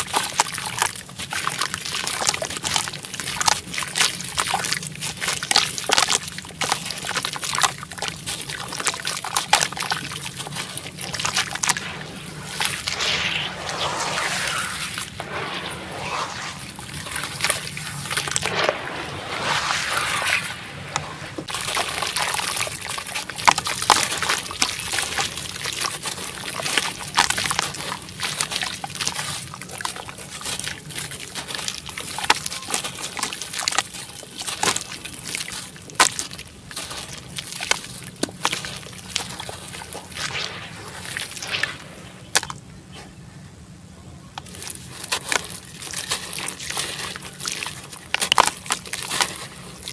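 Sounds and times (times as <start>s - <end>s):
fizzing crackles of soaking cement: 0.0s - 42.7s, 44.4s - 49.9s
water sloshing: 6.4s - 26.6s.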